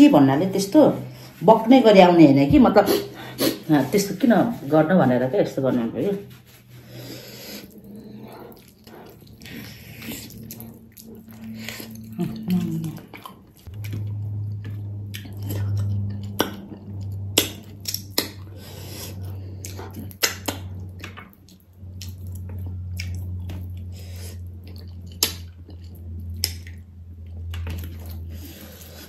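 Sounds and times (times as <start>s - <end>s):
low steady hum: 0.0s - 29.0s
person chewing: 6.6s - 29.0s
wet lip smacking: 15.1s - 26.8s.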